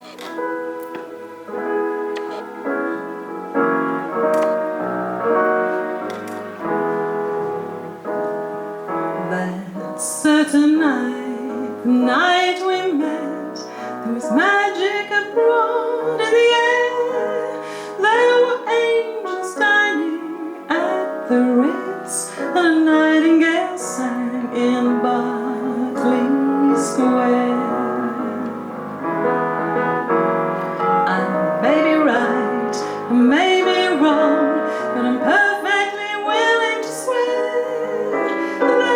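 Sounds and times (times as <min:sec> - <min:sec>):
piano playing: 0:00.0 - 0:38.9
woman singing: 0:09.1 - 0:28.8, 0:31.0 - 0:38.9.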